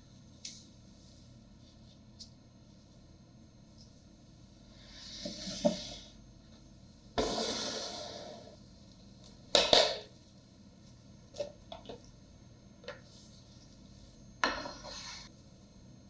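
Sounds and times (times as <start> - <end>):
kitchen cooking hiss: 7.2 - 8.7.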